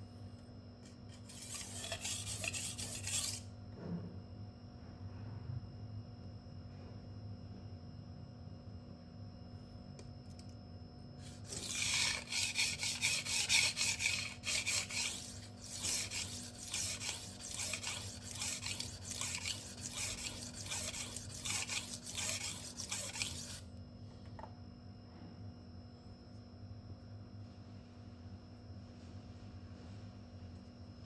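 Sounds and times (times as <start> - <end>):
knife scraping on sharpening stone: 1.1 - 3.5, 11.2 - 23.6.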